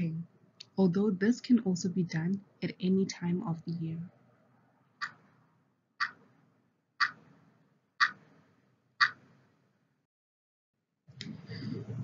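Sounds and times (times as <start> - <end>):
timer ticking: 5.0 - 5.2, 6.0 - 6.2.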